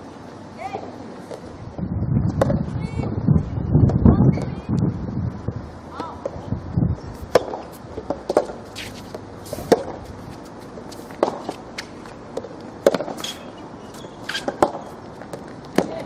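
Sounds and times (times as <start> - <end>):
rackets hitting tennis ball: 7.2 - 16.0.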